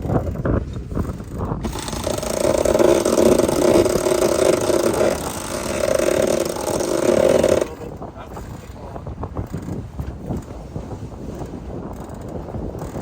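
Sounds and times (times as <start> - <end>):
electric winch motor whine: 1.6 - 8.0.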